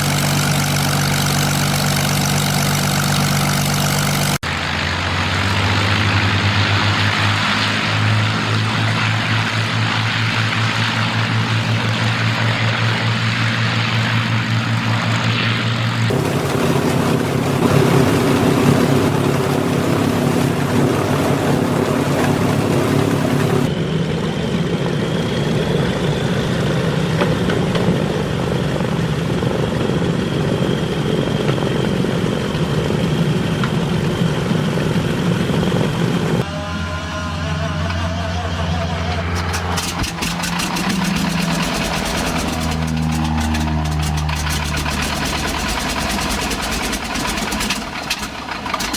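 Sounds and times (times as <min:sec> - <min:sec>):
propeller aircraft engines running: 0:00.0 - 0:48.9.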